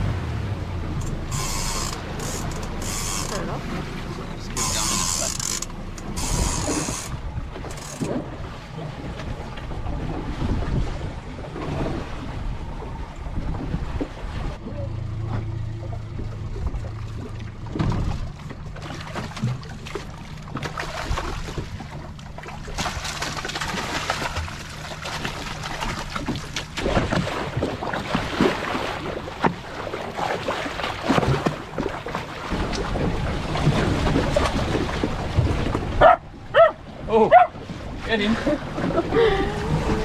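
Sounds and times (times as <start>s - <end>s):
boat motor humming: 0.0s - 40.0s
water splashing against hull: 0.0s - 40.0s.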